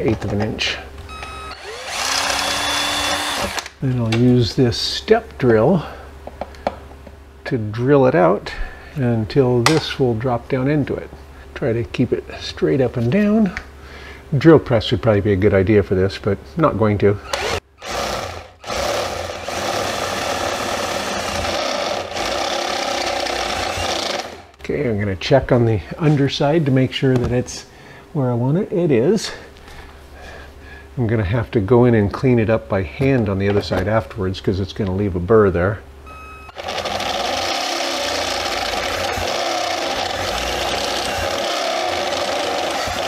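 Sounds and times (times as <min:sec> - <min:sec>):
power drill cutting sheet metal: 0:01.1 - 0:03.8, 0:17.3 - 0:24.6, 0:36.5 - 0:43.0.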